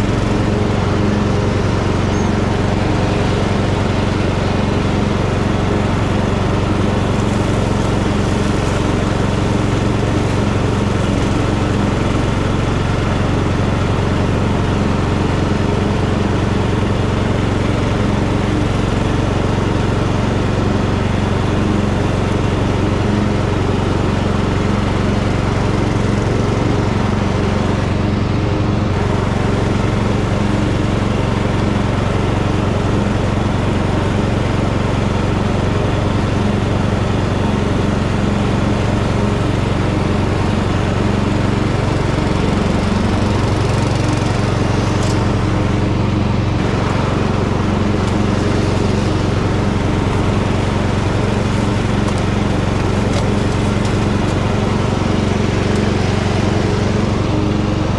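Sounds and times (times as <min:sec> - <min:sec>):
tractor engine running: 0:00.0 - 0:57.9.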